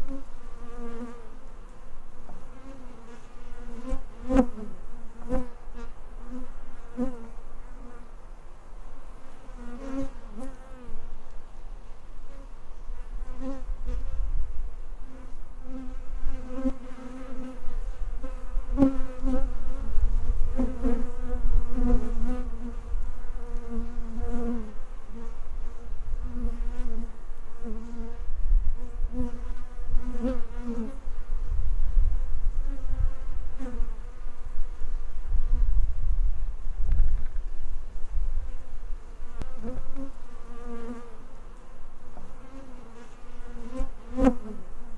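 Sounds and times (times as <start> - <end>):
honeybees buzzing: 37.8 - 44.9.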